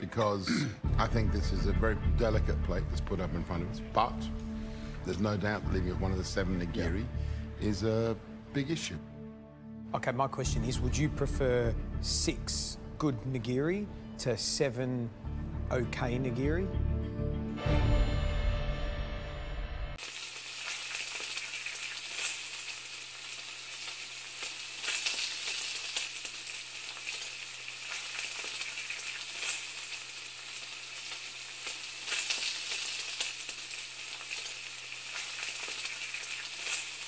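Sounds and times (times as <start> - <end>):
food sizzling in a pan: 20.0 - 37.0.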